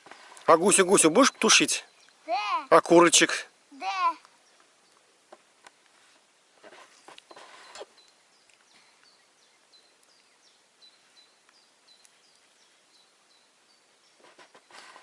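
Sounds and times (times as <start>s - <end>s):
small bird chirping: 0.0s - 2.7s, 6.8s - 15.0s
rustle: 0.0s - 15.0s.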